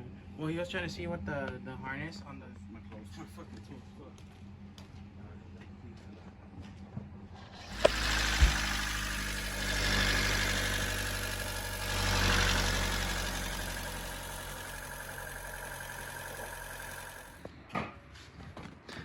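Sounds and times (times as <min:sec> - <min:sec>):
car engine idling: 0:07.5 - 0:17.4.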